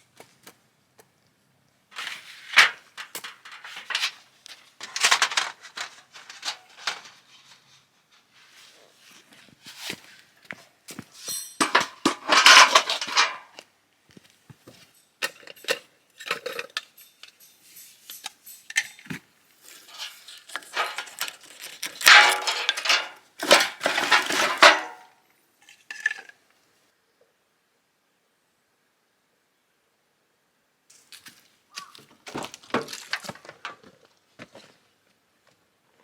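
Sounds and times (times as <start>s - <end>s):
cookware and cutlery clattering: 11.2s - 13.5s, 15.2s - 19.1s, 19.9s - 25.1s.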